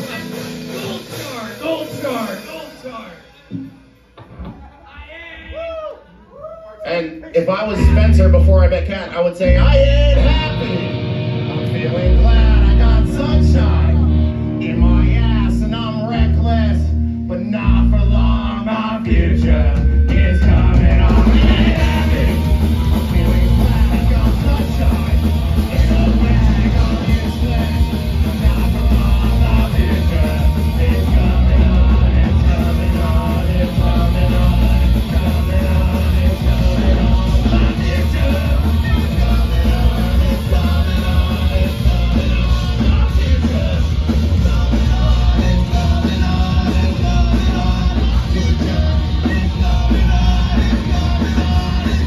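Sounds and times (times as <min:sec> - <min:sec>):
punk rock band playing live: 0:00.0 - 0:04.8, 0:07.6 - 0:52.0
yelled vocals: 0:17.6 - 0:52.0.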